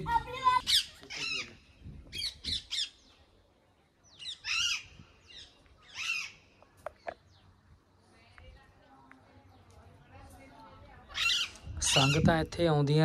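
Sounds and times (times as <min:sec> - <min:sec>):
bird calling: 0:04.1 - 0:07.6, 0:11.0 - 0:12.4.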